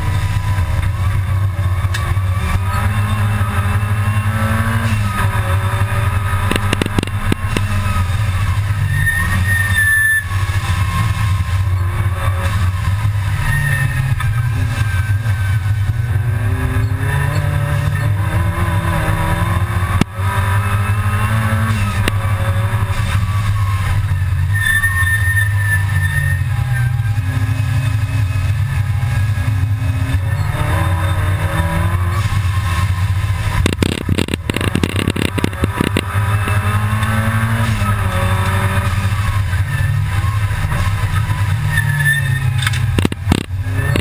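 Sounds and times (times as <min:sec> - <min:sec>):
race car engine: 0:00.0 - 0:44.0
sharp click: 0:06.4 - 0:07.7, 0:42.6 - 0:43.6.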